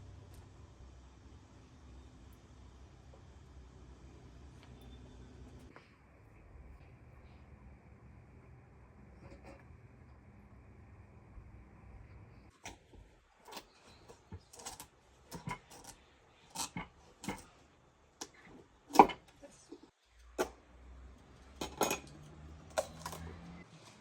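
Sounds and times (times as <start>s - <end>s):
faint low hum: 0.0s - 24.0s
utensils clinking against dishes: 13.5s - 17.5s, 21.4s - 23.6s.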